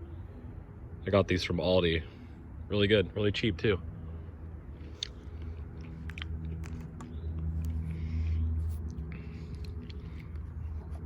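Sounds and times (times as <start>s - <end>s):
steady low hum: 0.0s - 11.0s
biting and chewing berries: 4.8s - 11.0s.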